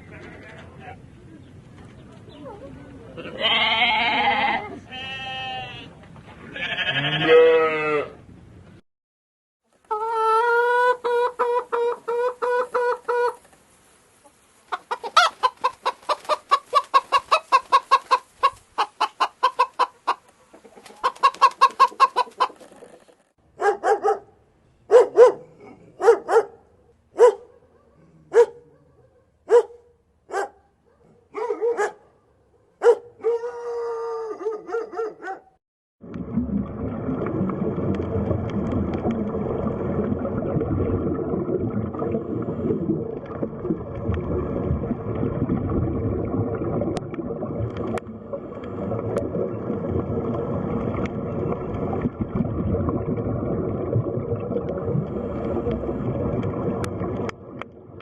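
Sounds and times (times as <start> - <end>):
goat bleating: 3.2 - 5.9, 6.5 - 8.2
chickens clucking: 9.8 - 13.5, 14.2 - 23.2.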